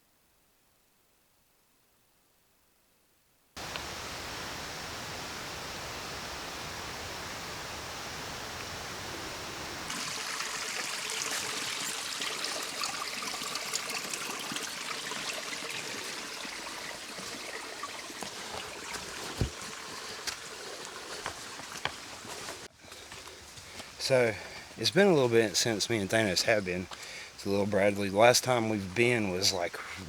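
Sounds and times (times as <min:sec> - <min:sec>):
creek water running over rocks: 0:08.5 - 0:30.0.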